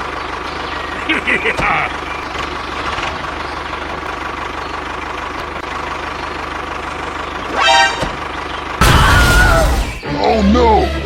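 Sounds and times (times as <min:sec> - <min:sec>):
idling engine pulse: 0:00.0 - 0:11.0.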